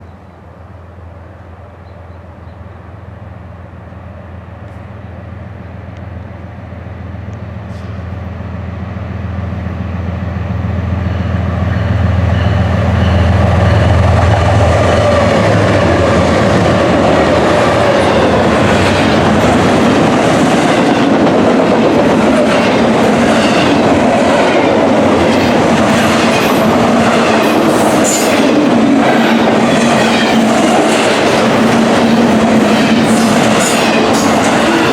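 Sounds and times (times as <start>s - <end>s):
diesel locomotive rumble: 0.0s - 34.9s
train wheels rushing on rail: 0.0s - 34.9s
train clickety-clack: 9.6s - 34.9s.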